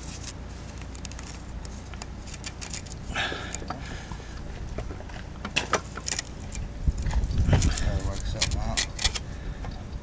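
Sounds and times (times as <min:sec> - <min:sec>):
steady low hum: 0:00.0 - 0:10.0
small tools clicking and tapping: 0:05.4 - 0:09.2.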